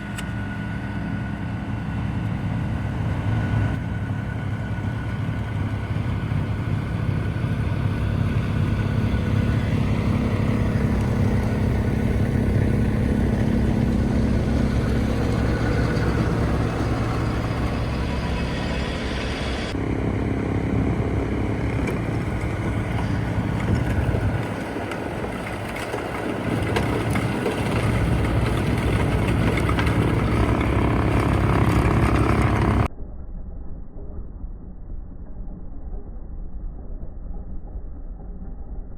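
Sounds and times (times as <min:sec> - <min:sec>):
snowblower engine drone: 0:00.0 - 0:32.9.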